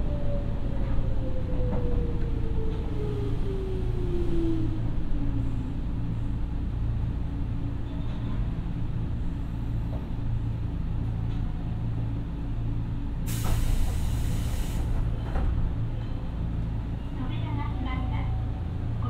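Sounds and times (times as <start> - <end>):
train interior rumble and hum: 0.0 - 19.0
air brakes hissing: 13.2 - 15.0.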